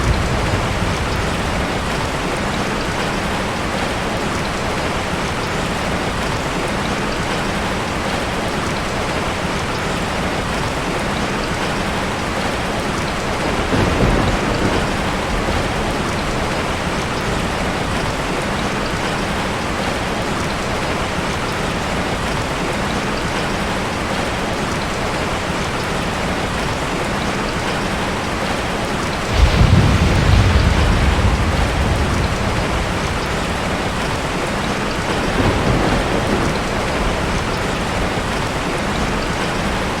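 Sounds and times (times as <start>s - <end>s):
thunder rumbling: 0.0s - 3.8s, 13.3s - 18.5s, 29.2s - 40.0s
steady rain falling: 0.0s - 40.0s.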